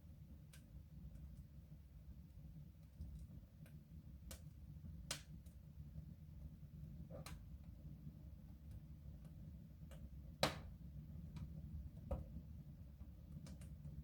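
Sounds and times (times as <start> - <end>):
low steady fire rumble: 0.0 - 14.0
fire crackling ticks: 0.4 - 1.5, 3.0 - 5.6, 13.4 - 13.8.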